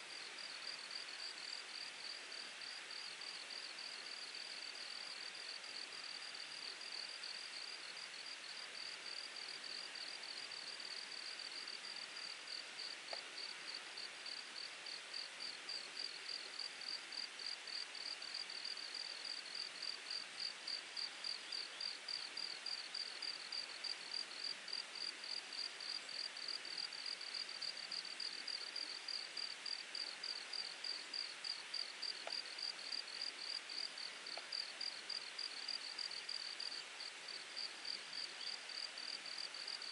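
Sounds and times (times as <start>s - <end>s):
babbling mountain stream: 0.0s - 39.9s
insect chirping: 2.6s - 27.7s, 28.5s - 39.9s.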